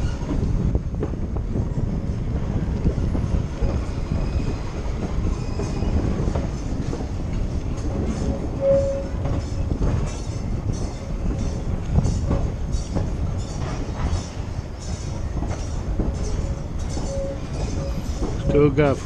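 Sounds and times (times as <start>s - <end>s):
rail car rumbling: 0.0s - 19.0s
wheel squeal: 3.2s - 6.2s, 16.2s - 18.7s.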